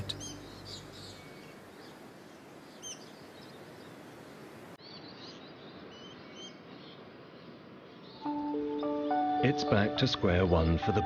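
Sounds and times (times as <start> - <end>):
high bird chirps: 0.0 - 2.0.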